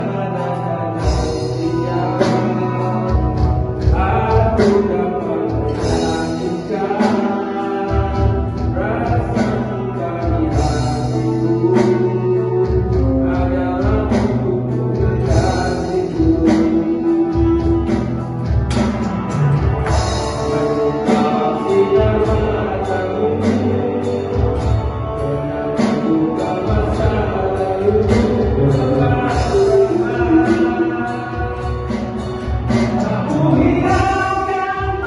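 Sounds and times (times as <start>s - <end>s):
guitar and bass: 0.0s - 35.0s
person singing: 0.0s - 35.0s.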